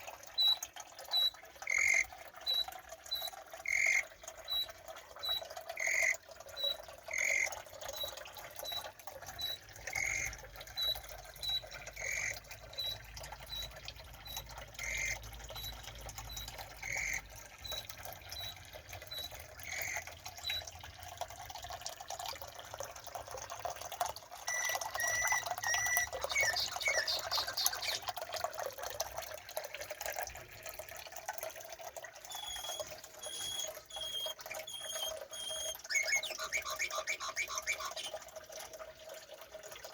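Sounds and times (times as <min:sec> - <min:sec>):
bird call: 0:00.4 - 0:08.8, 0:09.4 - 0:17.8, 0:24.5 - 0:28.0, 0:32.3 - 0:38.2
quick high bird chirps: 0:00.4 - 0:08.8, 0:09.4 - 0:17.8, 0:24.5 - 0:28.0, 0:32.3 - 0:38.2
different repeated bird call: 0:01.2 - 0:08.8, 0:24.5 - 0:28.0, 0:32.3 - 0:38.2.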